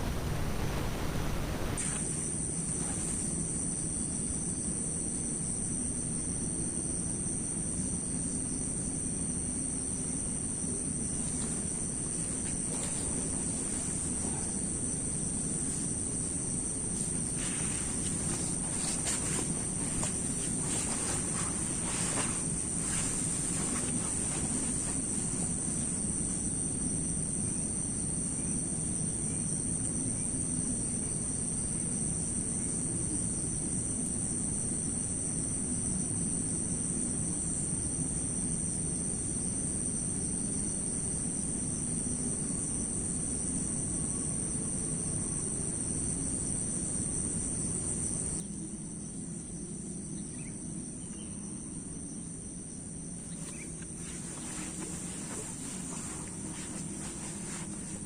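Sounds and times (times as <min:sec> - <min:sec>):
low rushing noise: 0:00.0 - 0:02.0
crickets chirring: 0:00.0 - 0:58.0.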